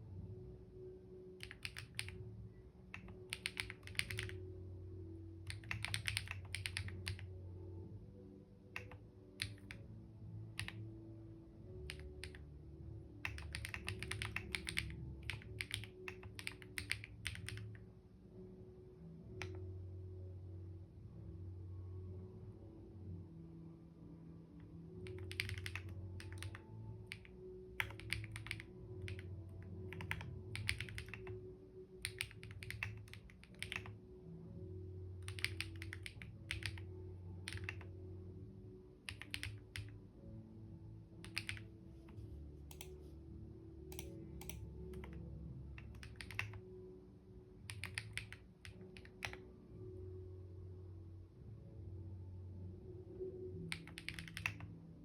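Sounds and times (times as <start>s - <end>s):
soft background music: 0.0s - 55.0s
typing on computer keyboard: 1.4s - 2.2s, 2.9s - 4.4s, 5.4s - 7.3s, 8.8s - 9.8s, 10.5s - 10.8s, 11.8s - 12.5s, 13.2s - 17.8s, 25.0s - 31.4s, 32.0s - 34.0s, 35.2s - 37.9s, 39.1s - 39.9s, 41.2s - 41.7s, 43.9s - 45.2s, 45.8s - 46.6s, 47.7s - 49.4s, 53.7s - 54.7s.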